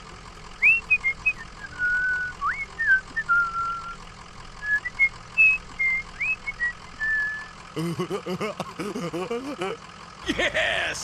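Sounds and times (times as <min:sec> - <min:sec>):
person whistling a tune: 0:00.6 - 0:04.0, 0:04.6 - 0:07.5.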